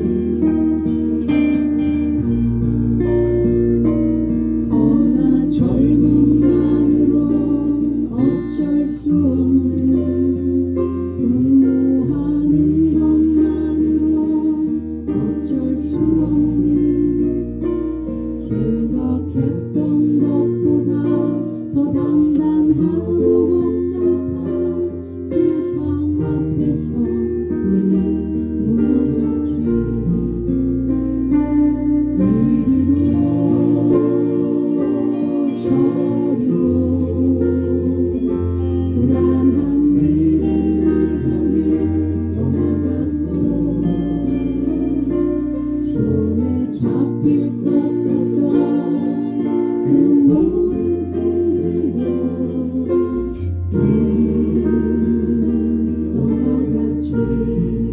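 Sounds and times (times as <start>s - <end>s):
guitar music: 0.0s - 57.9s
held low bass notes: 0.0s - 57.9s.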